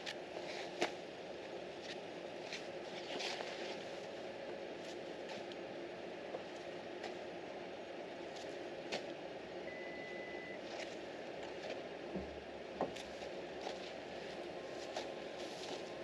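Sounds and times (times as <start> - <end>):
short high beep: 9.7 - 10.6.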